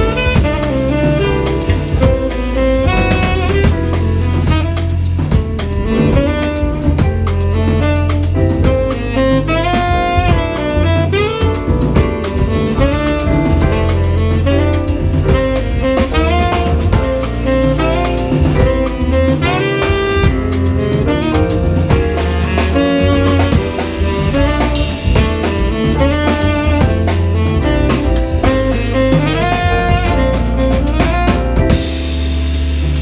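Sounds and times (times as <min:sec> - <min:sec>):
tenor saxophone phrases: 0:00.0 - 0:05.0, 0:05.7 - 0:31.8
bass: 0:00.0 - 0:33.0
drum kit: 0:00.0 - 0:33.0.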